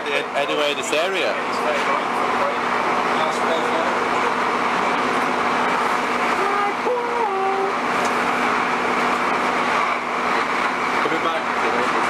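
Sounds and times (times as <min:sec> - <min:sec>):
diesel engine drone: 0:00.0 - 0:12.0
train wheels rumbling on track: 0:07.7 - 0:12.0.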